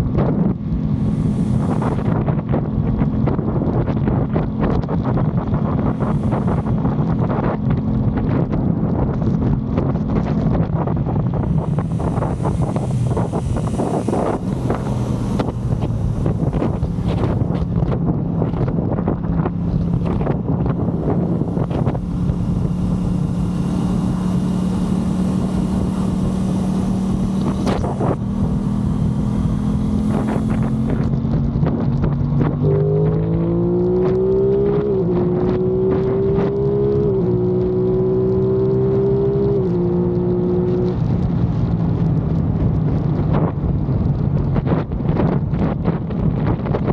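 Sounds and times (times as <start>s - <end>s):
motorcycle engine accelerating: 0.0s - 46.9s
wind noise on microphone: 0.0s - 46.9s.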